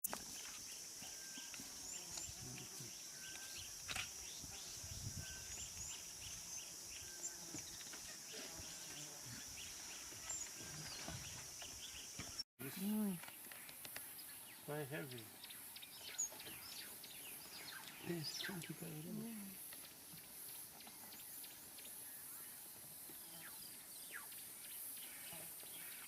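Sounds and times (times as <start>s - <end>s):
insect drone: 0.1s - 26.0s
bird chirps: 0.3s - 12.4s.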